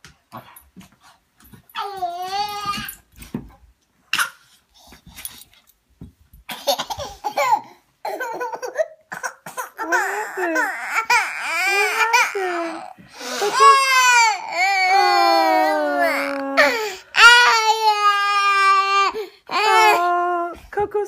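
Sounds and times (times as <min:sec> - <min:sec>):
baby wailing: 0:01.8 - 0:03.0, 0:09.8 - 0:20.2.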